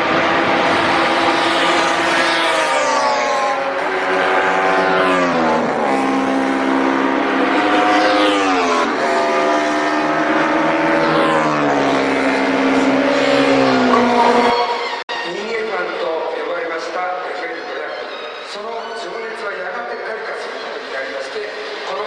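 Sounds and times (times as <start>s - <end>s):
racing motorcycle engines revving: 0.0s - 15.0s.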